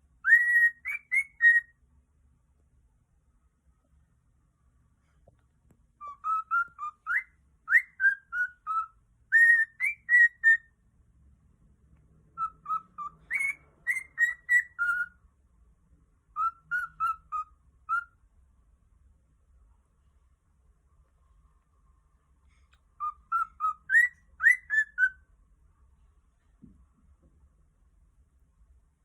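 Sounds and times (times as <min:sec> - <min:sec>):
cockatiel whistling: 0:00.2 - 0:01.8, 0:06.0 - 0:10.7, 0:12.4 - 0:15.2, 0:16.3 - 0:18.2, 0:23.0 - 0:25.3.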